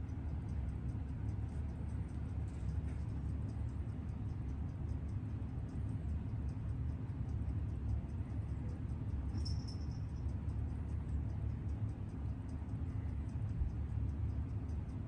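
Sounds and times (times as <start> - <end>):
steady low rumble: 0.0 - 15.0
watch ticking: 0.0 - 15.0.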